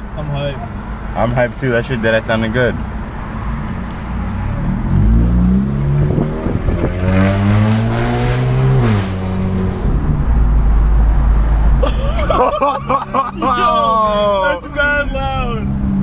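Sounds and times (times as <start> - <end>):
car engine revving: 1.9 - 13.3.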